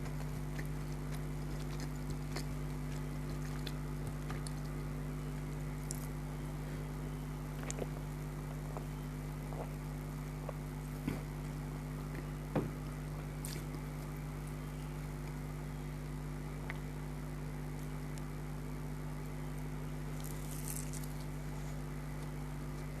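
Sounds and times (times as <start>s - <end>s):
eating clicks and crunches: 0.0s - 6.4s, 7.4s - 14.6s, 16.5s - 17.0s, 19.2s - 21.3s
steady low hum: 0.0s - 23.0s.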